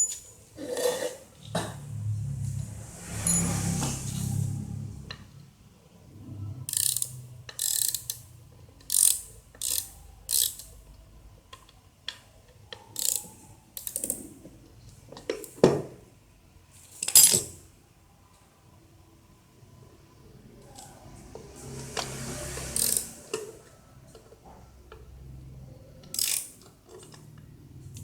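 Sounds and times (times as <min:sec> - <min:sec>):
ratchet wrench clicking: 0:06.7 - 0:10.8, 0:13.0 - 0:13.2, 0:22.8 - 0:23.1, 0:26.1 - 0:26.6.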